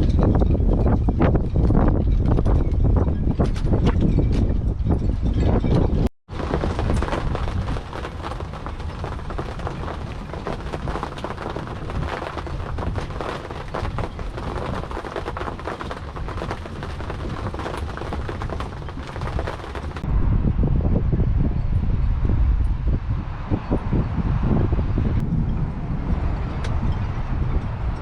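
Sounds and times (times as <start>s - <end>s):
wind rumble on microphone: 0.0s - 28.0s
rain pattering on a surface: 6.3s - 20.1s.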